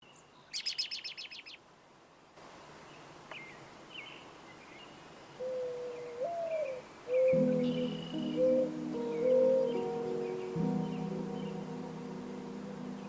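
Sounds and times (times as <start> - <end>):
small bird chirping: 0.0 - 1.6, 3.3 - 11.7
music: 7.3 - 13.0.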